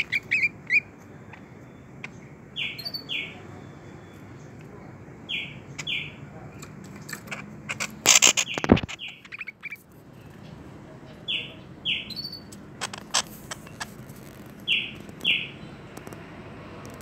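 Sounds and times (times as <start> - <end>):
bird chirping: 0.0 - 14.0, 14.6 - 16.1
sharp clicks and knocks: 6.6 - 9.1, 12.5 - 15.3.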